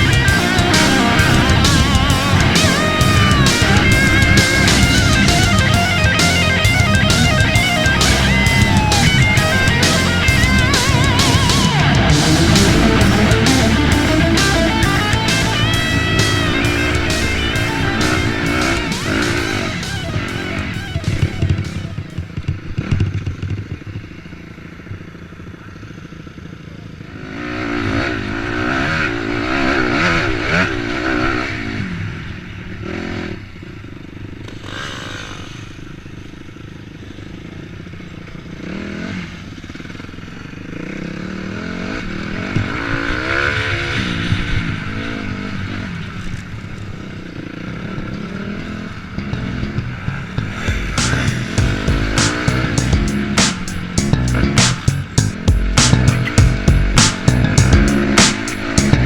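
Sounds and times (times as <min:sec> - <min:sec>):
dirt bike engine revving: 0:00.0 - 0:23.8, 0:34.3 - 0:36.4, 0:38.3 - 0:59.0.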